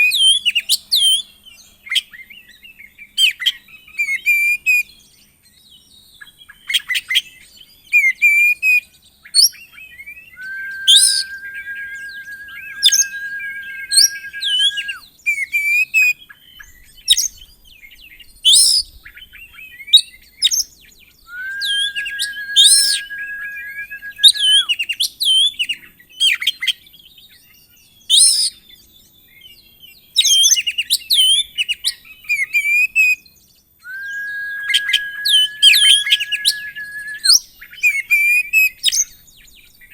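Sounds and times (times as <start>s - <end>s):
bird singing chirps and whistles: 10.3s - 15.1s, 21.3s - 24.7s, 33.8s - 37.5s.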